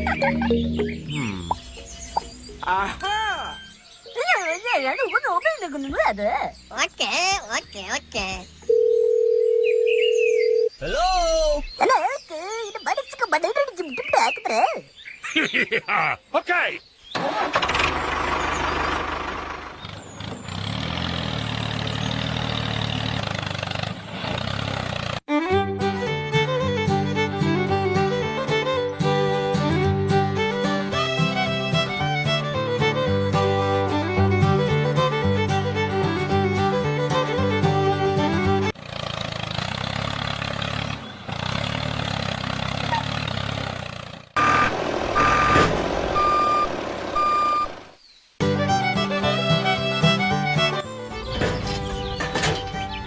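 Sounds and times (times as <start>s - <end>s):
heavy vehicle engine running: 17.2s - 25.2s, 38.6s - 48.0s, 50.6s - 53.0s
mini tractor engine chugging: 17.2s - 25.2s
reversing alarm beeping: 44.4s - 47.8s.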